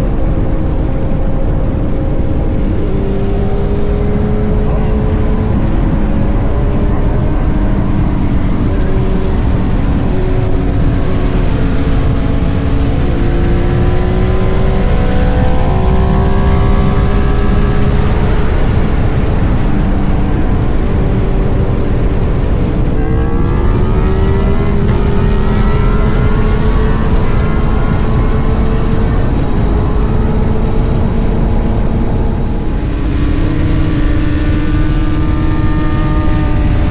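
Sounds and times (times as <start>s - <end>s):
motorcycle engine accelerating: 0.0s - 36.9s
wind rush: 0.0s - 36.9s.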